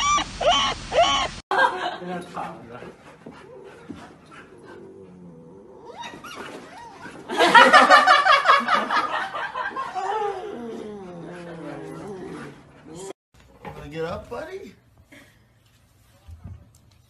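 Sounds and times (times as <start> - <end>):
puppy yelping howl: 0.0 - 1.4, 5.6 - 7.2.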